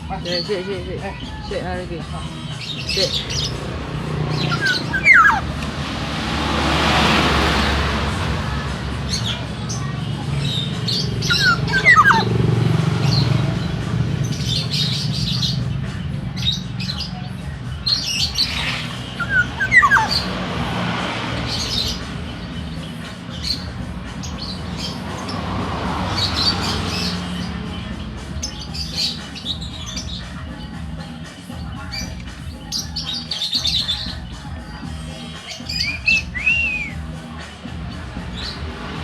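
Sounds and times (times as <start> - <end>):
high bird chirps: 2.2 - 8.0, 9.0 - 34.4, 35.2 - 37.2
bird whistling descending notes: 4.3 - 5.6, 11.3 - 12.3, 18.0 - 20.4, 35.8 - 37.0.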